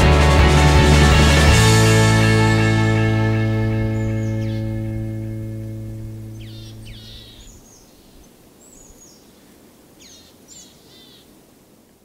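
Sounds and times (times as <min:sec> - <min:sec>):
held music chord: 0:00.0 - 0:07.4
birds chirping: 0:02.8 - 0:11.3
outdoor hiss: 0:03.5 - 0:12.0.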